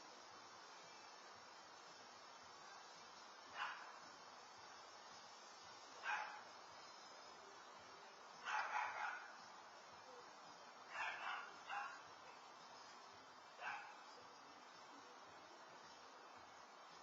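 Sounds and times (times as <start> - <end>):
dog barking: 3.5 - 4.0, 6.0 - 6.4, 8.4 - 9.4, 10.9 - 12.1, 13.6 - 14.1.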